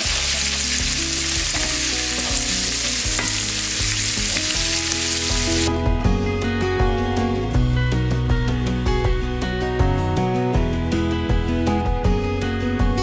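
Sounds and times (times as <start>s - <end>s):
leaves sizzling in oil: 0.0s - 5.7s
soft guitar music: 0.0s - 13.0s.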